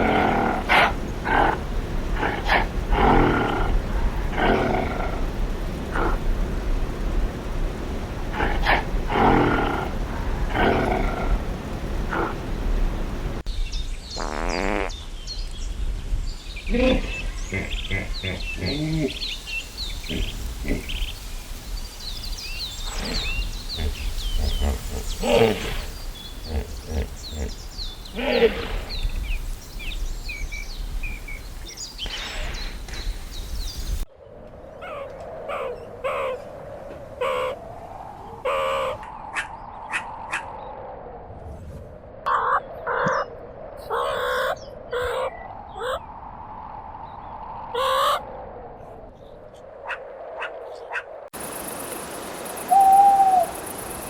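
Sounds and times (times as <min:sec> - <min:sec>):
birds chirping: 0:00.0 - 0:37.6, 0:49.2 - 0:54.0
bird giving raspy calls: 0:49.9 - 0:54.0
lower-pitched animal call: 0:52.6 - 0:53.8.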